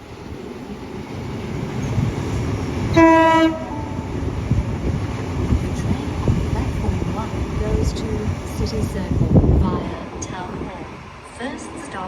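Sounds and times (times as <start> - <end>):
train rumbling along track: 0.0 - 12.0
short train horn blast: 2.9 - 4.0.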